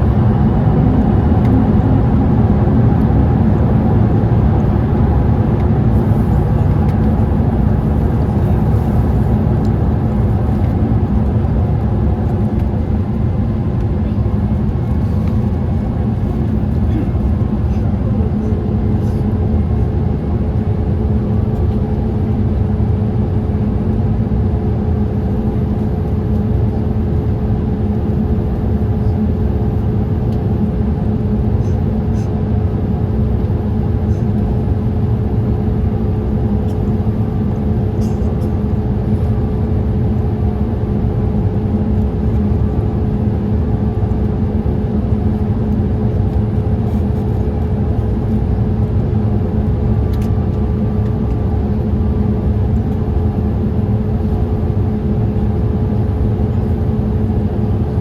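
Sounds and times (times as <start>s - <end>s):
airplane cabin noise: 0.0s - 58.0s
constant hum tone: 0.0s - 58.0s.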